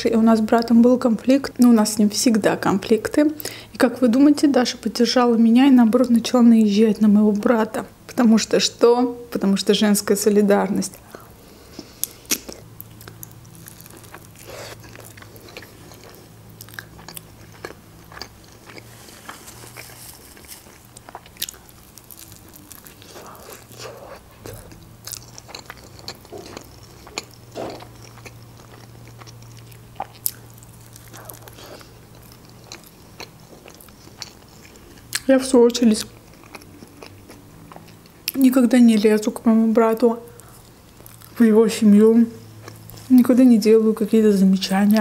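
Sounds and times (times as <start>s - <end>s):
faint low hum: 0.0s - 45.0s
person chewing food: 11.1s - 35.3s, 36.0s - 38.4s, 40.3s - 41.4s
food crunching: 11.1s - 38.5s, 40.3s - 41.4s.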